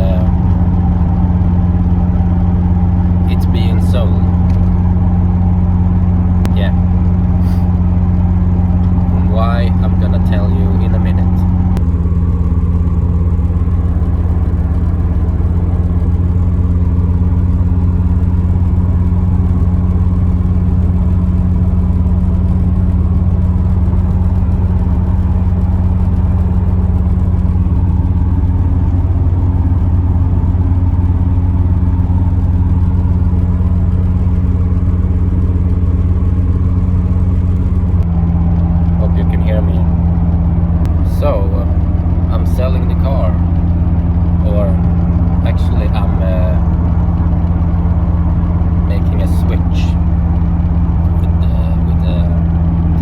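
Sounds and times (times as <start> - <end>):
car engine droning steadily: 0.0 - 53.0.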